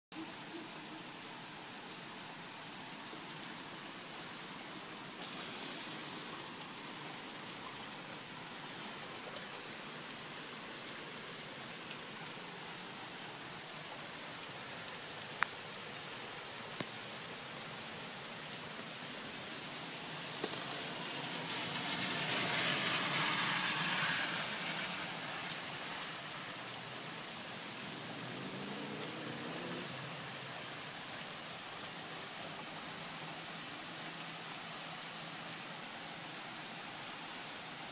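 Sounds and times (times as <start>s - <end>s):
rain pattering: 0.2s - 37.9s
rushing sound: 19.8s - 26.3s.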